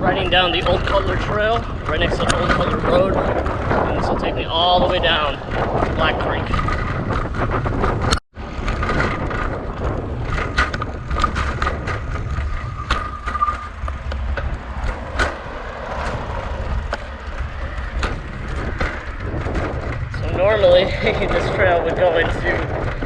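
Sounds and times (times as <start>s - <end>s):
bicycle clicks and rattles: 0.0s - 23.0s
wind buffeting microphone: 0.0s - 23.0s.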